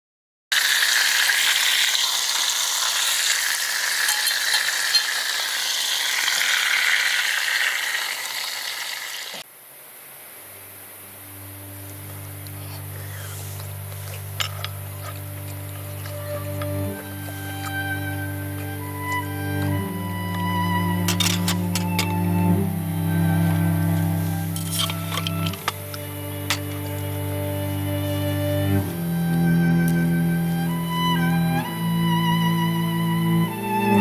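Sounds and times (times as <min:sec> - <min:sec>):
food sizzling in a hot pan: 0:00.5 - 0:09.4
calm music with low notes: 0:10.4 - 0:34.0.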